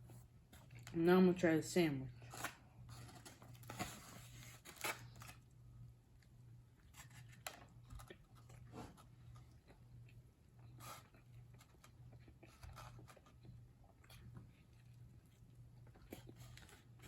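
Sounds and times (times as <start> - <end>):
sandwich crunching when chewed: 6.7 - 17.0.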